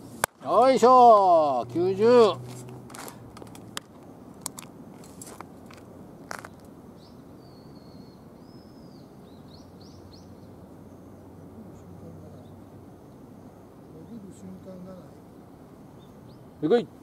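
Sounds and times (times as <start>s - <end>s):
open-air background noise: 0.0s - 17.0s
bird chirping high calls: 7.0s - 11.4s.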